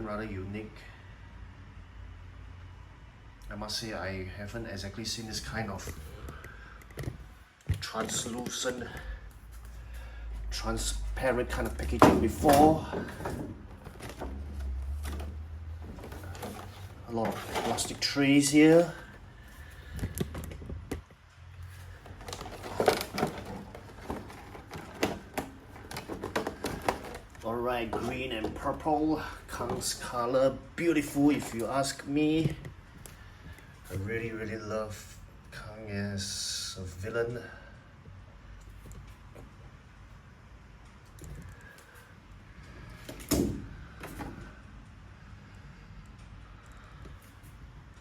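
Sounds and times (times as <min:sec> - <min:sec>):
plastic packaging rustling: 0:11.2 - 0:30.1
plastic trays clicking and knocking: 0:22.0 - 0:28.8.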